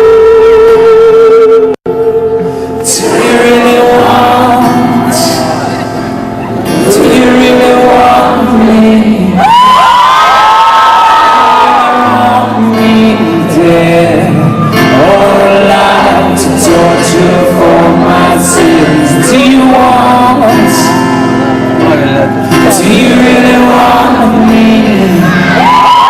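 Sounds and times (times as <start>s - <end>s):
person singing: 0.0s - 9.8s, 11.2s - 26.0s
live rock band playing: 12.1s - 26.0s.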